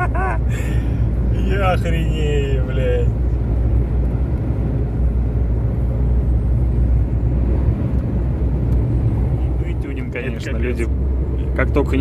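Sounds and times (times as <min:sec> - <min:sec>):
road and wind noise: 0:00.0 - 0:12.0
truck engine drone: 0:00.0 - 0:12.0.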